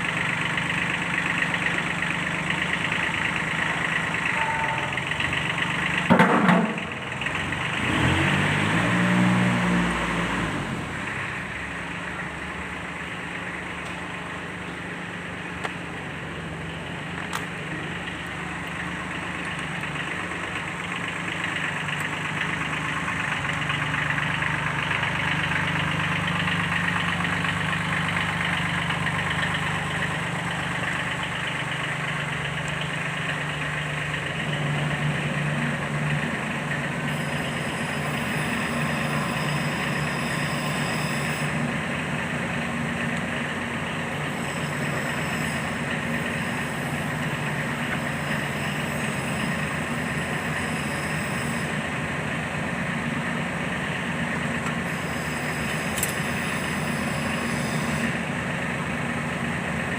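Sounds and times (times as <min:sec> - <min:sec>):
tractor diesel engine idling: 0:00.0 - 0:59.9.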